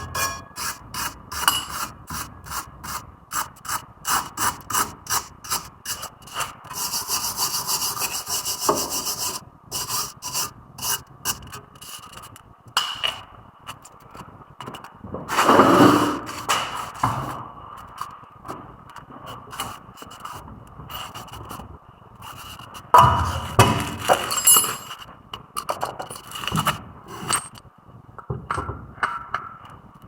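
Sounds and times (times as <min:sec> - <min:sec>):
metal rasping on metal: 0:00.0 - 0:12.2.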